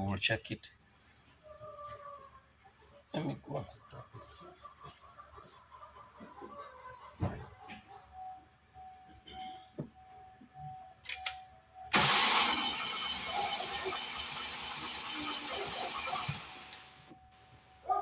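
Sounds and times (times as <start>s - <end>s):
car engine cranking by starter motor: 11.9s - 17.1s.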